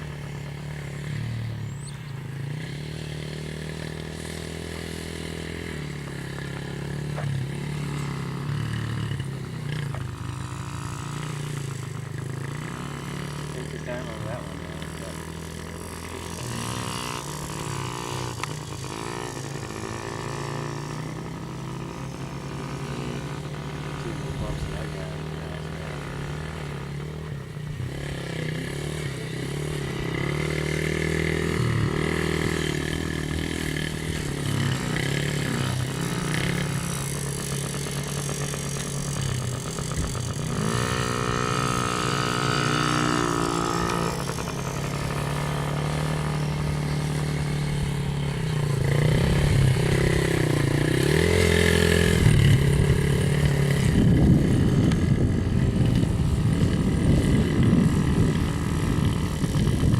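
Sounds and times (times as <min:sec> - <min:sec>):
dirt bike engines revving: 0:00.0 - 0:59.9
higher engine note: 0:12.8 - 0:59.9.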